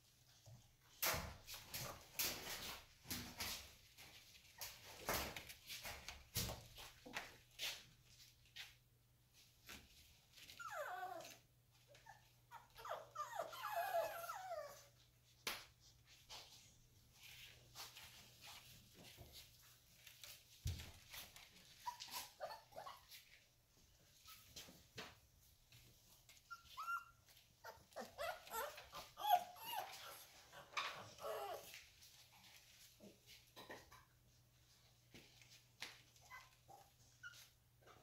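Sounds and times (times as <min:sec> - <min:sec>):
puppies whining: 0:10.5 - 0:14.9, 0:21.7 - 0:23.2, 0:26.4 - 0:31.8.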